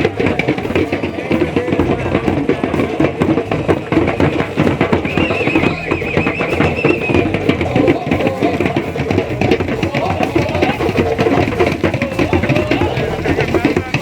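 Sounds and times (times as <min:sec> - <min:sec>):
rapid dense drumming: 0:00.0 - 0:14.0
wavering high-pitched note: 0:04.7 - 0:09.0.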